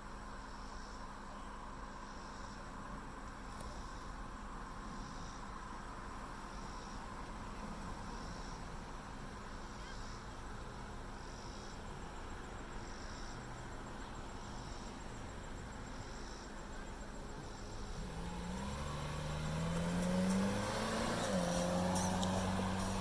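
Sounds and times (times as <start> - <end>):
background hiss: 0.0 - 23.0
car engine accelerating: 17.4 - 23.0.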